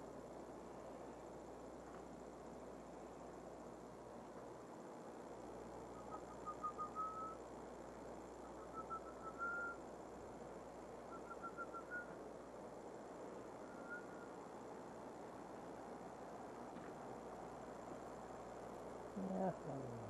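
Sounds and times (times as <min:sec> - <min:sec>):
steady low hiss: 0:00.0 - 0:20.0
bird whistling: 0:06.0 - 0:07.4, 0:08.6 - 0:09.8, 0:11.1 - 0:12.2, 0:13.6 - 0:14.3.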